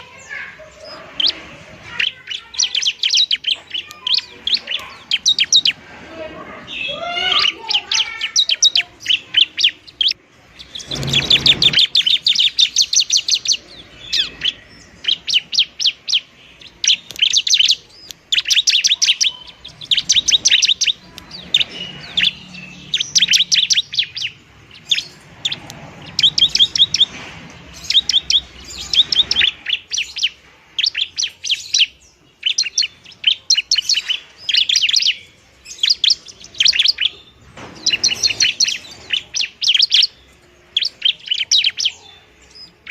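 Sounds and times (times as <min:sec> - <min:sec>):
bird chattering trills: 0:00.0 - 0:42.9.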